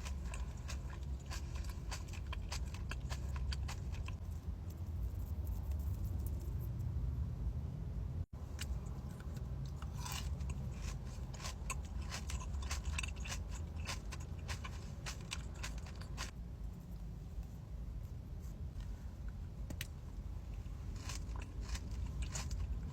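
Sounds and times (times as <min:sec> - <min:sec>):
crunchy chewing: 0:00.0 - 0:06.5, 0:08.6 - 0:16.4, 0:20.6 - 0:22.9.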